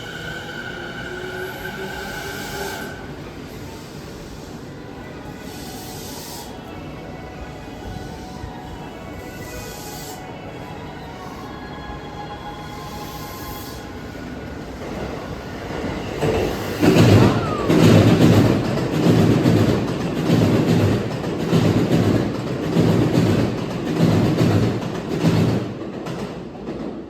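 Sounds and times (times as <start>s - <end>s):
train wheels clattering over rails: 14.8s - 27.0s.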